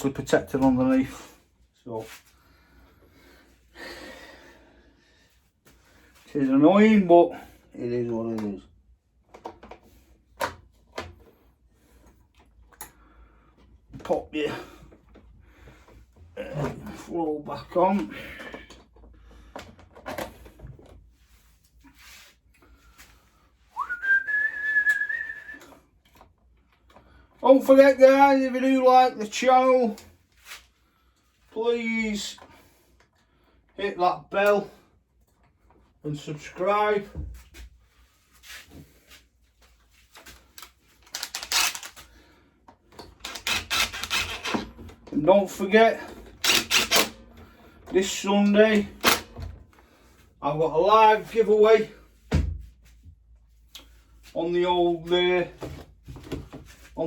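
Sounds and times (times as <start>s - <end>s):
clicks and knocks from handling parts: 8.1s - 11.4s, 12.0s - 13.0s, 17.9s - 21.1s, 39.6s - 49.8s
metal parts clicking and rattling: 40.6s - 42.1s, 43.0s - 45.2s.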